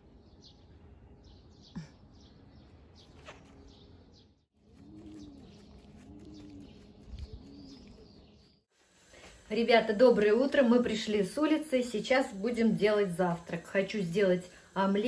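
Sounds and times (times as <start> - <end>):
low bird calls: 1.4 - 8.6.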